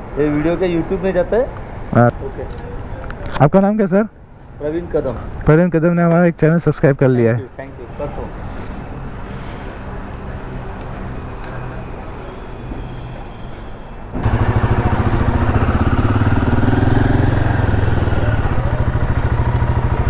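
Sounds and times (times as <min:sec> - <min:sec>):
motorcycle engines idling: 0:14.1 - 0:20.0.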